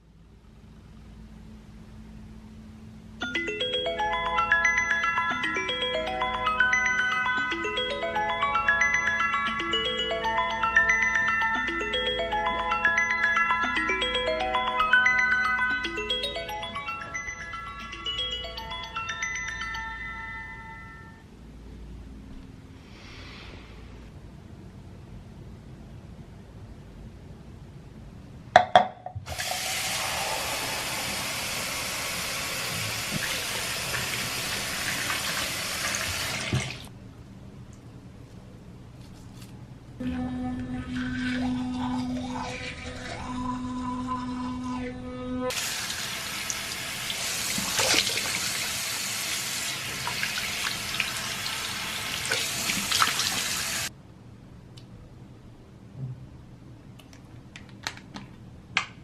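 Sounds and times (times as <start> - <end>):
tap water running into sink: 29.3 - 36.8, 45.6 - 53.8.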